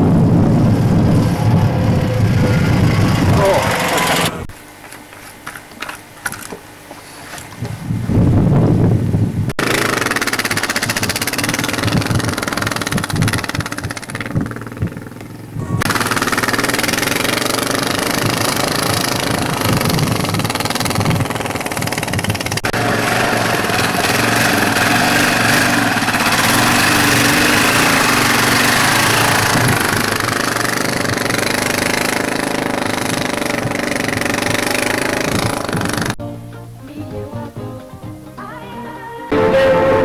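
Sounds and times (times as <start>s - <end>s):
vehicle engine running loudly: 0.0s - 4.5s, 9.6s - 36.2s.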